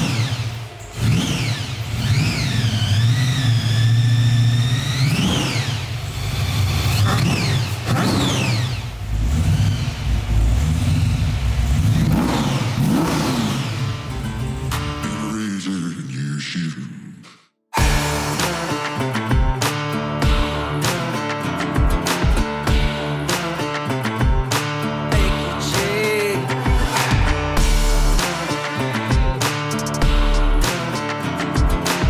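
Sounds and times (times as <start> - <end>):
car engine revving: 0.0 - 15.4, 17.8 - 32.0.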